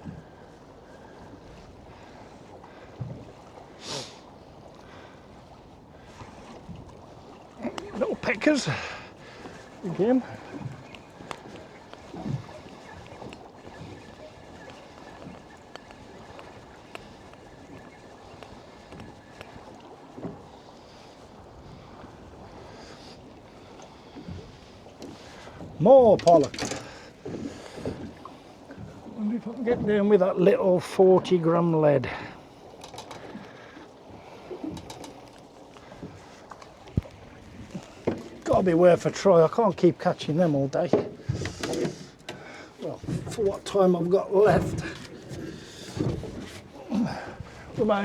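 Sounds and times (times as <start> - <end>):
water lapping against boat hull: 0.0 - 48.0
wind: 0.0 - 48.0.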